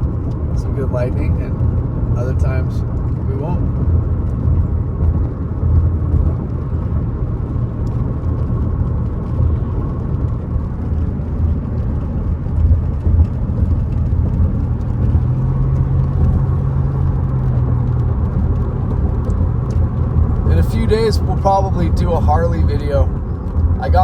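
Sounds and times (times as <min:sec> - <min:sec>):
car engine rumble inside cabin: 0:00.0 - 0:24.0.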